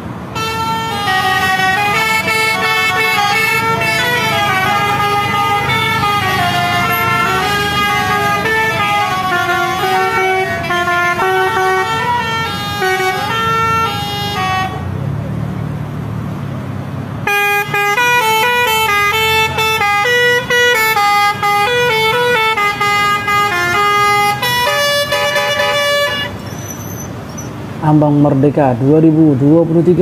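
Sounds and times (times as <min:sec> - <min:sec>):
lorry musical air horn tune: 0:00.4 - 0:14.8, 0:17.3 - 0:26.4.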